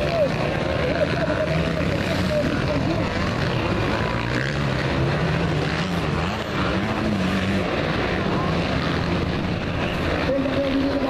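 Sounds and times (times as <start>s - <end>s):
motocross motorcycle engines racing: 0.0s - 11.0s.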